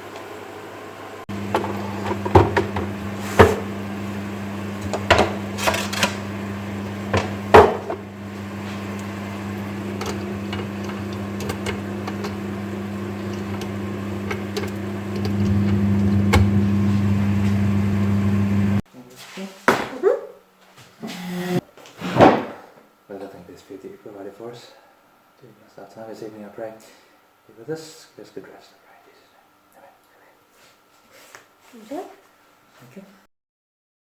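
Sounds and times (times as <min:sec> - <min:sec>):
microwave oven humming: 0:00.0 - 0:18.8
kitchenware clinking: 0:08.8 - 0:16.6.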